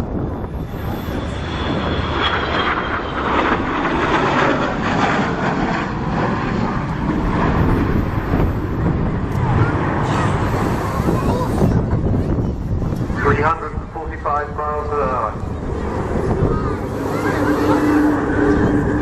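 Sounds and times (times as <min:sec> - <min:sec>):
jet aircraft roar: 0:00.0 - 0:19.0.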